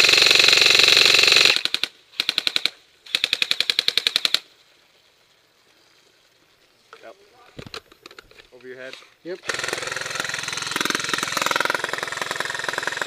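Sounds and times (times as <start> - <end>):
airsoft rifle firing bursts: 0.0 - 4.4, 9.4 - 13.0.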